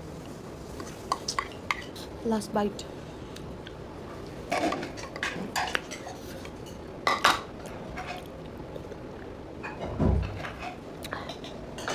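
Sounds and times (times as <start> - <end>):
utensils clinking against a bowl: 4.5 - 8.3, 9.6 - 11.9.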